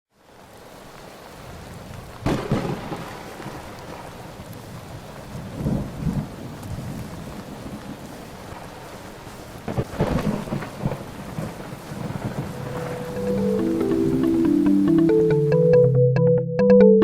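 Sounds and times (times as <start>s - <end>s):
steady rain: 0.1s - 15.4s
low rumble of thunder: 1.6s - 9.1s, 9.7s - 13.2s
sharp thunderclap: 2.2s - 3.7s, 9.7s - 13.2s.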